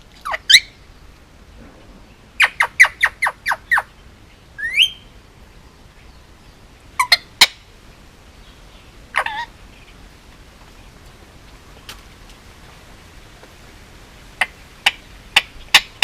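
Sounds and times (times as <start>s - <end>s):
parakeet squawking: 2.4s - 3.9s, 4.6s - 5.0s, 7.0s - 7.6s, 9.1s - 9.5s
parakeet rising whistled call: 4.6s - 5.0s.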